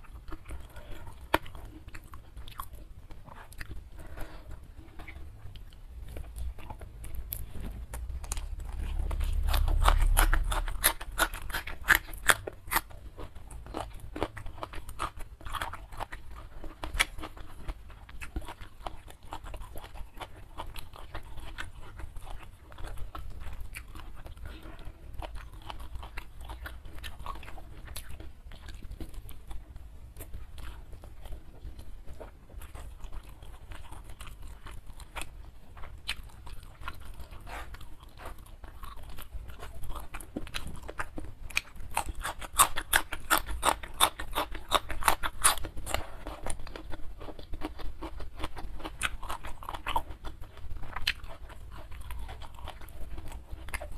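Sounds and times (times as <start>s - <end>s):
crunchy chewing: 0.0s - 53.9s
low muffled rumble: 3.3s - 12.2s.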